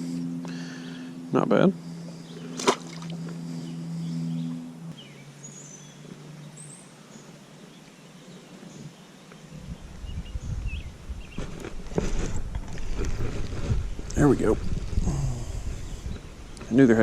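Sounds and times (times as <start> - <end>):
low steady hum: 0.0 - 17.0
small birds chirping: 1.6 - 11.6
wind rumble on microphone: 9.5 - 17.0.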